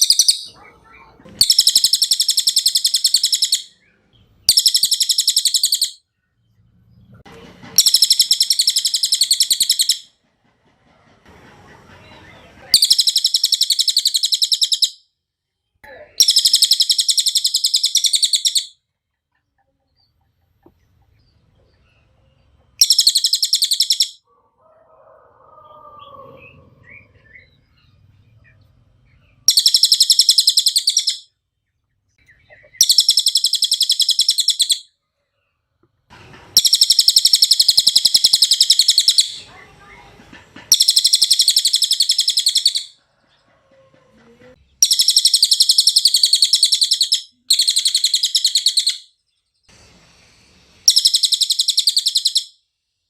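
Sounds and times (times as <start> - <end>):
parrot trilling chatter: 0.0 - 3.8, 4.5 - 6.0, 7.8 - 10.1, 11.6 - 15.0, 16.1 - 18.8, 22.8 - 28.0, 29.4 - 31.3, 32.4 - 34.9, 36.5 - 49.1.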